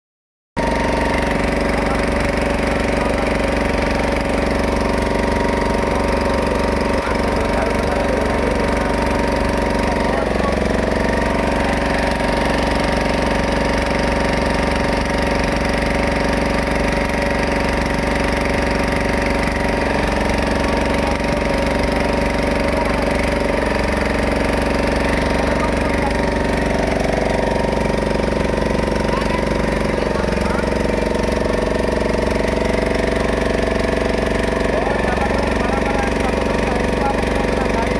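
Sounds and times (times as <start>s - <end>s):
boat engine running: 0.6s - 37.9s.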